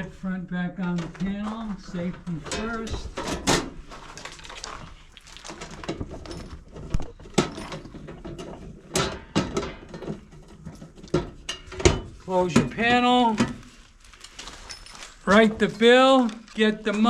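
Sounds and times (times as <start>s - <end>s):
sheet metal cover knocks and clanks: 2.3s - 3.8s, 5.9s - 13.6s.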